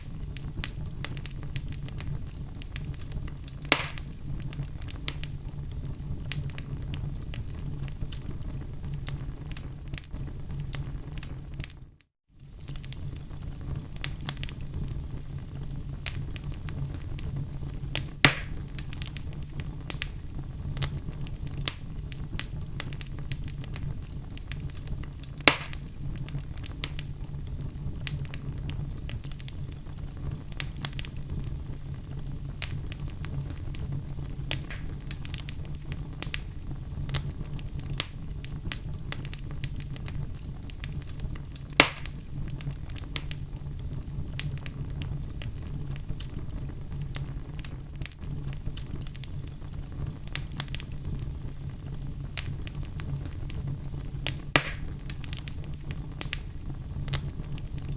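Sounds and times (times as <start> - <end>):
fire crackling and popping: 0.0 - 57.9
loud fire snaps: 0.0 - 57.9
steady low rumble: 12.7 - 57.9.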